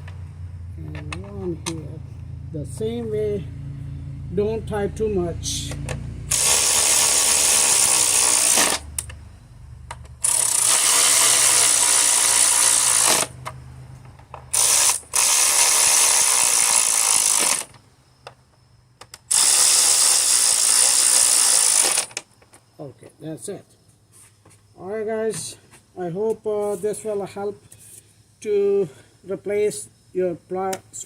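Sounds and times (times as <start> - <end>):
power tool motor bursts: 6.3 - 9.1, 10.2 - 13.4, 14.5 - 17.8, 19.2 - 22.2.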